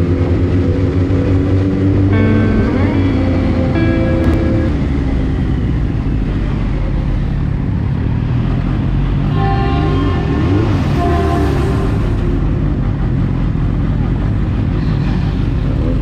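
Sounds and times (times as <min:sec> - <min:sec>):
motorcycle engine rumble: 0:00.0 - 0:16.0
brief pitched tones: 0:02.1 - 0:04.8.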